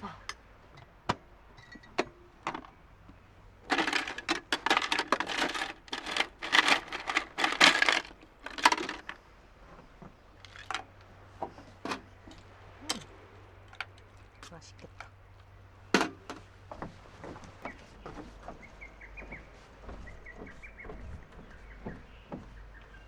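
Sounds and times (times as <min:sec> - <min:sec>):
light clicks and knocks: 0:00.3 - 0:19.4
packaging crinkling: 0:03.7 - 0:09.2.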